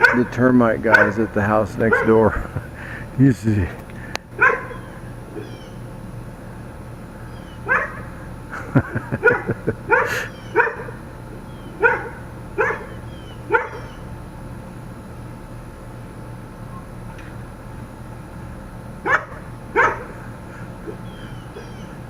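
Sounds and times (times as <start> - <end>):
dog barking: 0.0 - 2.4, 4.4 - 5.8, 7.6 - 8.1, 9.2 - 11.0, 11.8 - 14.0, 19.0 - 20.2
steady low hum: 0.0 - 22.0.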